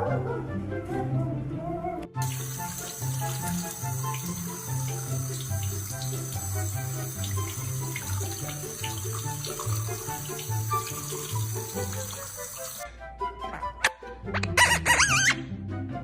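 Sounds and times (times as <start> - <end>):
water running from a tap: 2.2 - 12.8.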